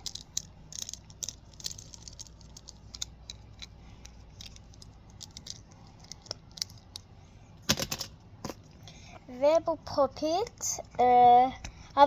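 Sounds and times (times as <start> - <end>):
plastic toys clicking and rattling: 0.0 - 7.1.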